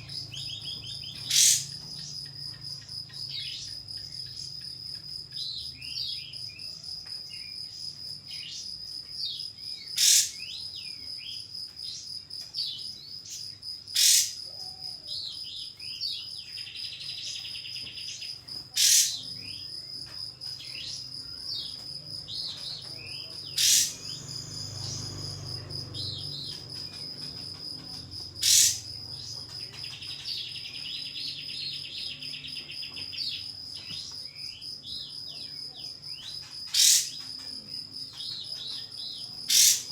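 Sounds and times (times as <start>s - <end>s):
bird buzzing trills: 0.0s - 4.5s, 17.6s - 19.6s, 23.0s - 33.4s, 36.4s - 37.3s, 39.2s - 39.9s
bird chirps: 0.0s - 39.9s
high insect-like whine: 0.0s - 39.9s
bird whip-like calls: 10.0s - 10.3s, 18.8s - 19.2s, 23.6s - 24.1s, 28.4s - 28.8s, 36.7s - 37.1s, 39.5s - 39.9s.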